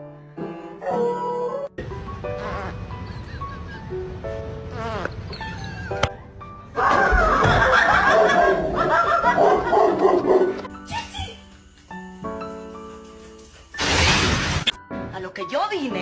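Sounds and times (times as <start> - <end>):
piano notes: 0.0 - 13.8
dog howling: 0.8 - 1.8.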